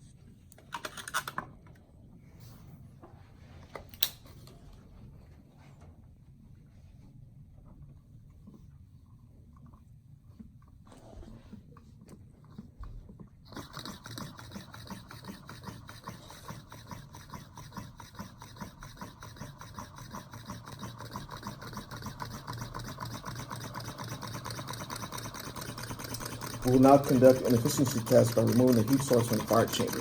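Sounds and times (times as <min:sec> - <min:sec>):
small engine rubbing tick: 0:13.5 - 0:30.0.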